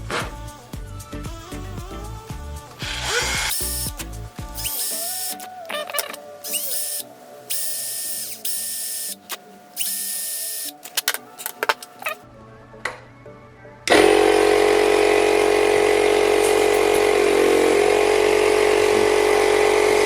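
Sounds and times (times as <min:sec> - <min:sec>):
background music: 0:00.0 - 0:18.1
compressed air hissing: 0:02.8 - 0:10.8, 0:15.0 - 0:19.6.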